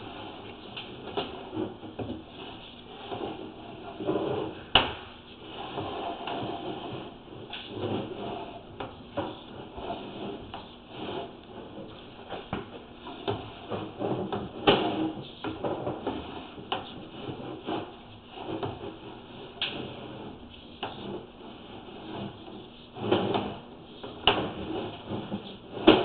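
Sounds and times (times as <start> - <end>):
cable scraping and rubbing in pipe: 0.0 - 26.0.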